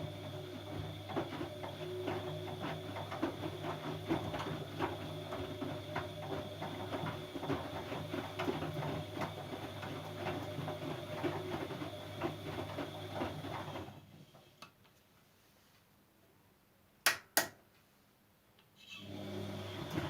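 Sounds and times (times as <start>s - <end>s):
washing machine running: 0.0s - 14.4s, 19.0s - 20.0s.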